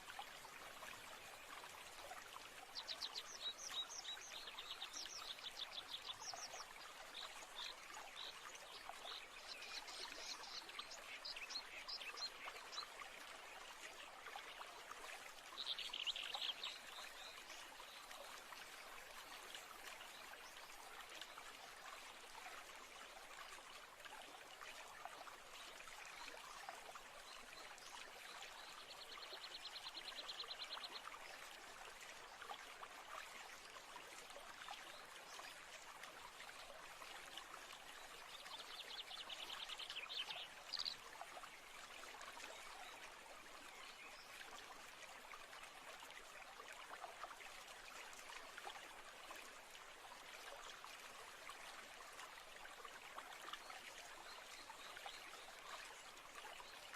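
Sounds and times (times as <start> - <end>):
stream running water: 0.0 - 56.9.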